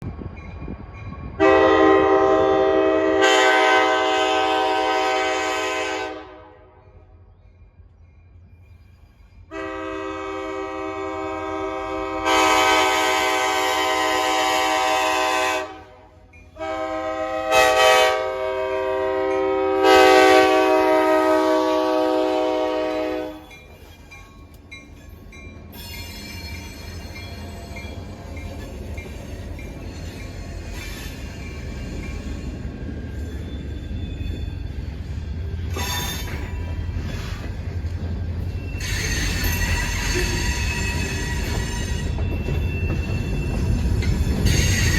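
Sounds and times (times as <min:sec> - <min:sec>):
train rumbling past: 0:00.0 - 0:44.9
locomotive air horn chord: 0:01.4 - 0:06.8, 0:09.5 - 0:23.5.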